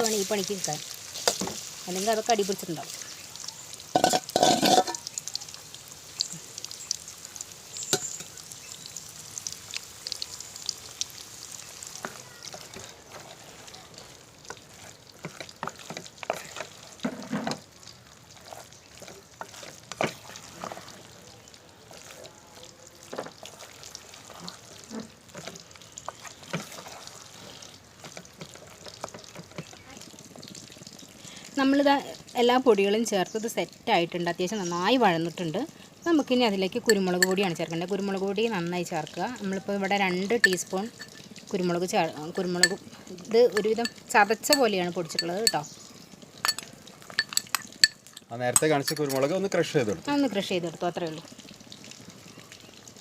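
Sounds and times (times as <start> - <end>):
food sizzling in oil: 0.0 - 53.0
spatula scraping a pan: 4.0 - 5.1, 12.0 - 17.6, 18.4 - 21.1, 23.4 - 29.8
utensil clattering against pan: 4.0 - 5.1, 46.4 - 49.3.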